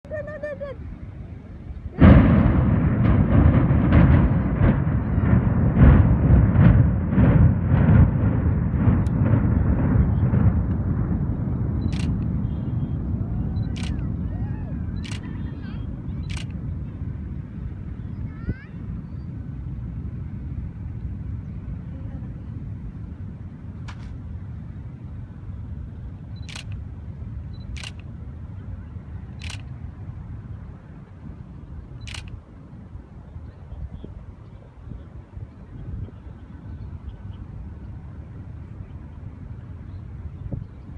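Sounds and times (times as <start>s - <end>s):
low rumble with sharp cracks: 0.0s - 40.9s
explosive charges detonating: 2.0s - 12.4s
camera shutter clicks: 11.9s - 12.3s, 13.7s - 14.0s, 15.0s - 15.3s, 16.2s - 16.6s, 23.9s - 24.2s, 26.4s - 26.8s, 27.8s - 28.1s, 29.4s - 29.8s, 32.1s - 32.4s.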